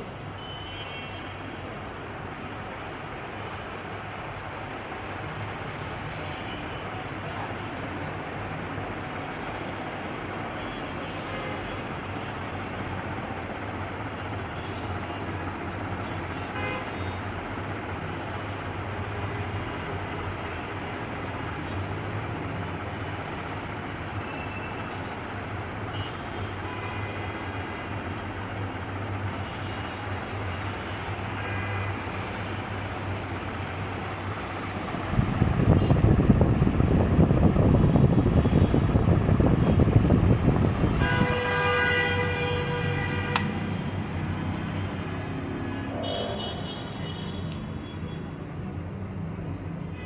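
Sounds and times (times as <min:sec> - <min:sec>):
ceiling fan running: 0:33.1 - 0:41.6
wind buffeting microphone: 0:35.1 - 0:41.4.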